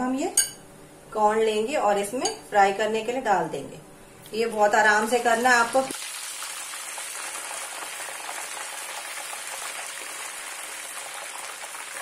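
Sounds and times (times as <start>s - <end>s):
corn deep-frying in bubbling oil: 5.1s - 12.0s.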